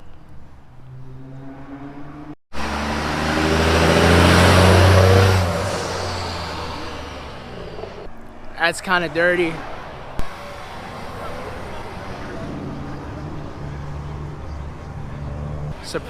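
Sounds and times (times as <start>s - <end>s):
car driving past: 0.7s - 8.1s.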